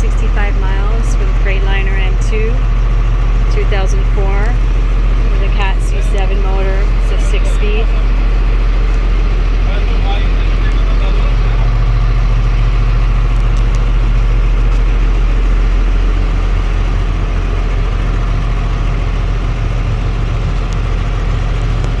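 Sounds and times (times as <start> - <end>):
truck diesel engine idling: 0.0 - 22.0.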